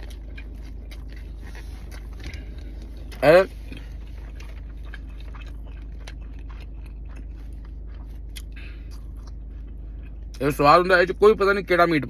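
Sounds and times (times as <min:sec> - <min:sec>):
wet mouth clicks and crunches: 0:00.0 - 0:10.5
person chewing food: 0:00.0 - 0:11.1
low hum: 0:00.0 - 0:12.0.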